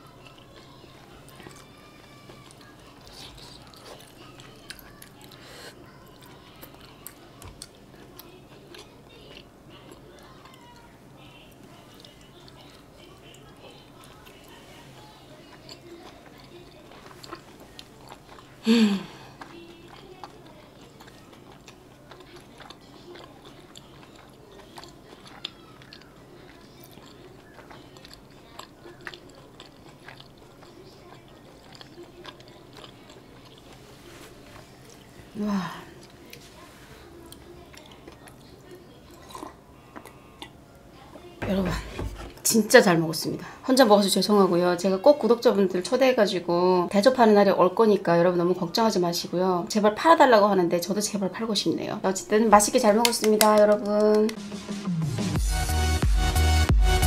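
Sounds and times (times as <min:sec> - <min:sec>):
person chewing: 0:00.0 - 0:10.9, 0:15.4 - 0:35.2, 0:35.9 - 0:40.6
wet chewing mouth clicks: 0:19.4 - 0:33.8.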